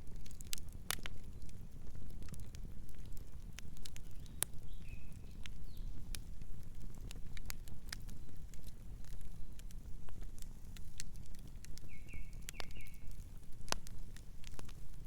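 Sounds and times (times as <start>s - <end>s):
campfire crackling and popping: 0.0s - 15.0s
soft bird chirp: 4.0s - 6.0s, 11.8s - 13.2s.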